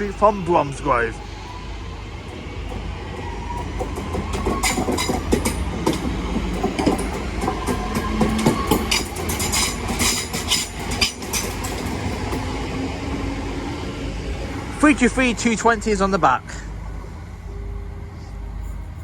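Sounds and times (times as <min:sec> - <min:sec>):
train rolling rumble: 0:00.0 - 0:19.0
wheels clacking over rail joints: 0:02.2 - 0:13.4.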